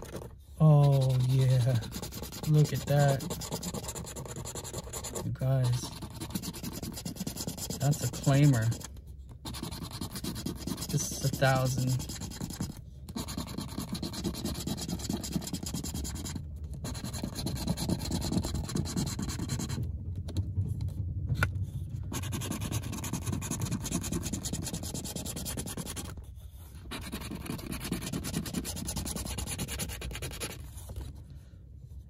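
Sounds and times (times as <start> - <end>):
lottery ticket being scratched: 0.0 - 8.9, 9.5 - 19.8, 27.0 - 30.6.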